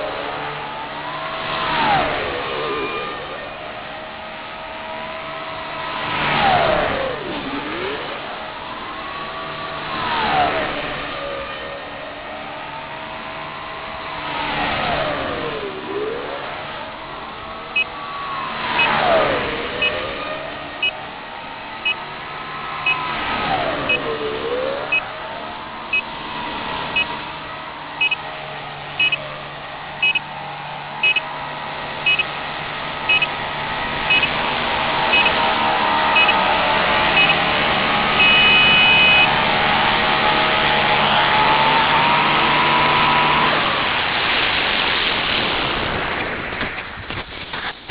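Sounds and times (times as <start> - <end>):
short high electronic beep: 28.0 - 28.2, 32.1 - 32.3, 34.1 - 34.3, 38.2 - 39.3.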